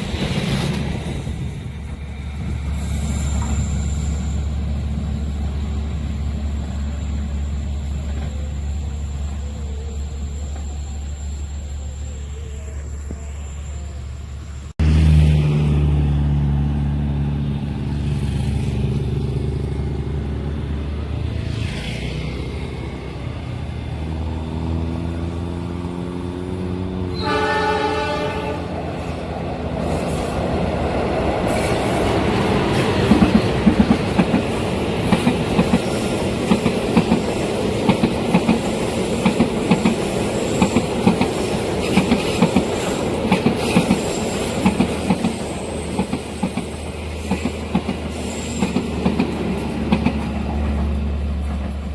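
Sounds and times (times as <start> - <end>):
train wheels clicking on rails: 0.0 - 12.1, 28.8 - 51.9
locomotive engine drone: 2.4 - 34.0
train horn: 27.0 - 28.9.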